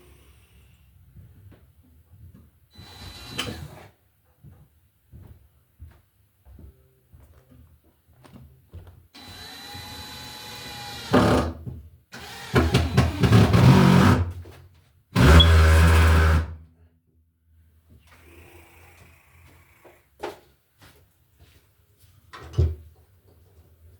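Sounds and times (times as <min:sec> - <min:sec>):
power drill running: 0:02.8 - 0:03.6, 0:09.2 - 0:11.5, 0:12.2 - 0:14.2, 0:15.2 - 0:16.4.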